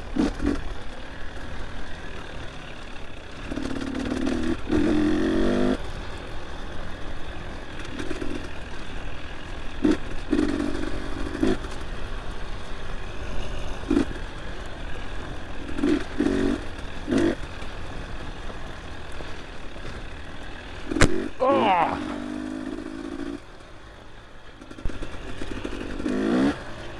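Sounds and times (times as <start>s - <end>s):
dirt bike engine revving: 0.1s - 0.8s, 3.4s - 5.8s, 7.9s - 11.8s, 12.9s - 14.3s, 15.5s - 17.8s, 19.8s - 23.5s, 24.6s - 26.9s.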